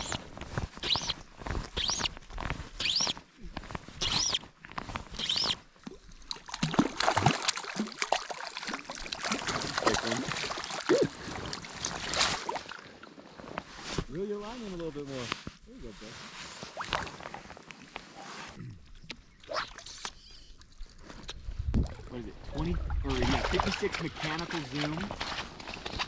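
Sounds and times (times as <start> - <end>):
water sloshing: 5.0 - 13.1, 21.8 - 26.0.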